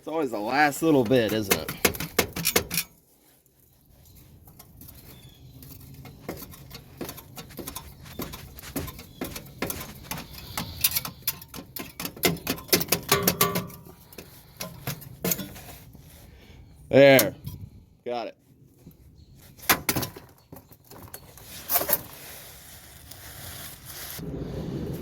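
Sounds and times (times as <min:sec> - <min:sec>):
metallic clicks and scraping: 0:00.5 - 0:03.0, 0:04.0 - 0:16.0, 0:19.5 - 0:22.2.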